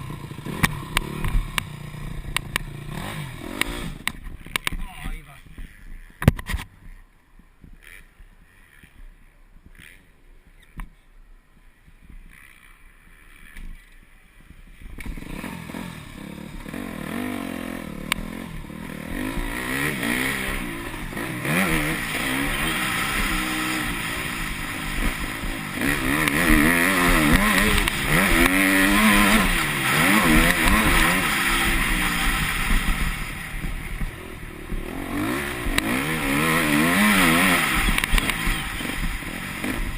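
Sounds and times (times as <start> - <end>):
motocross bike engine revving: 0.0 - 4.8, 7.8 - 9.0, 9.7 - 10.2, 15.0 - 39.9.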